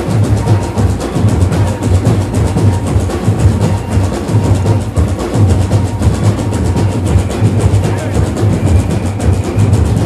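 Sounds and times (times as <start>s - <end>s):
deep bass drums pounding: 0.0s - 10.0s
samba percussion ensemble: 0.0s - 10.0s.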